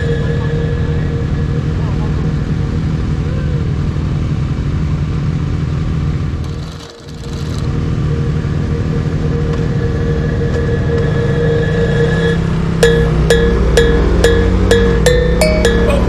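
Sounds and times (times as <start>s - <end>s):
motorcycle engine idling: 0.0s - 10.9s
background music with percussion: 12.8s - 16.0s.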